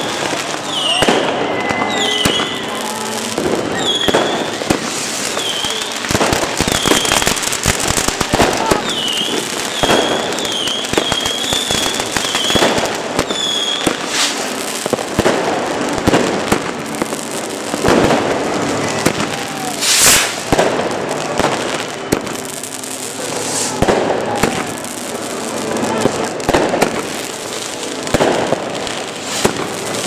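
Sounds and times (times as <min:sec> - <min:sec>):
fireworks bangs: 0:00.0 - 0:30.0
fireworks crackling: 0:00.0 - 0:30.0
loud hissing rush: 0:00.6 - 0:09.8, 0:12.8 - 0:30.0.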